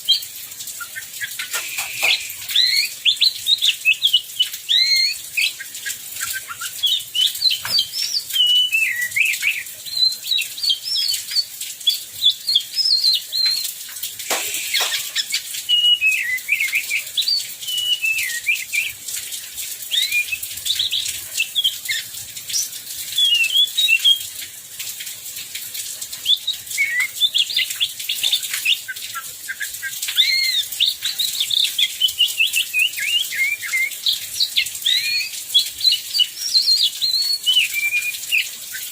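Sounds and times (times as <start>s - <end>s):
heavy rain hiss: 0.0s - 3.2s, 14.0s - 17.3s
bird whistling song: 0.0s - 13.6s, 14.3s - 19.0s, 19.9s - 24.2s, 26.2s - 38.9s.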